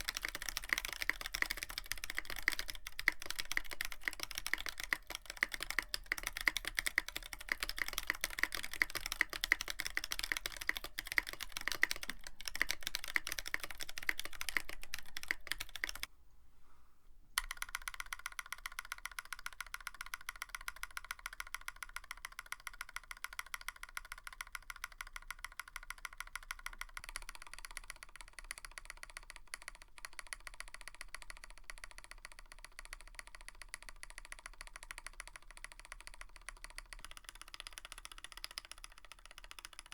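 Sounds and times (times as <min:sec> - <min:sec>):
mechanical keyboard typing: 0:00.0 - 0:16.1, 0:17.4 - 0:39.9.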